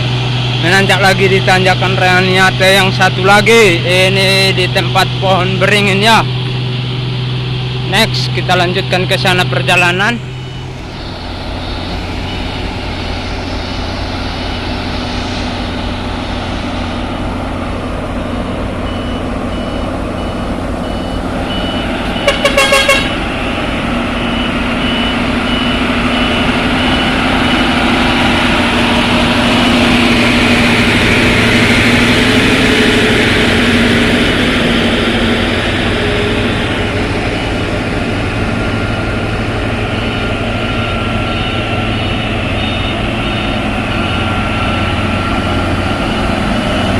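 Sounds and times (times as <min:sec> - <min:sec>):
diesel truck engine under load: 0:00.0 - 0:46.9
truck horn toots: 0:21.8 - 0:23.3, 0:40.0 - 0:46.9.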